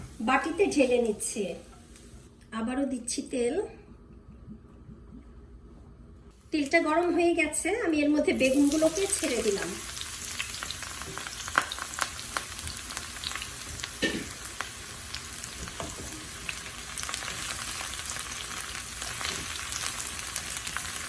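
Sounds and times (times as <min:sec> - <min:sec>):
eggplant sizzling in hot oil: 0:08.0 - 0:21.0.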